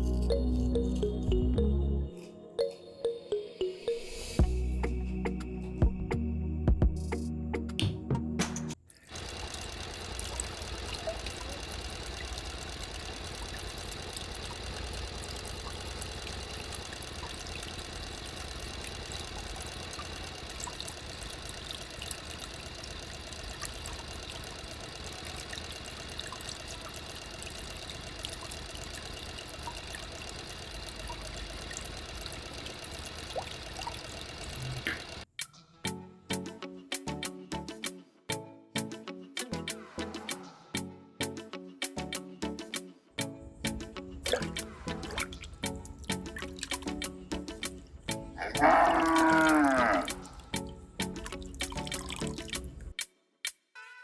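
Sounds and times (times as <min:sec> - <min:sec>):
small water pump running: 0:08.9 - 0:35.2, 0:43.2 - 0:53.0
water pouring and trickling: 0:08.9 - 0:35.2, 0:44.2 - 0:53.0.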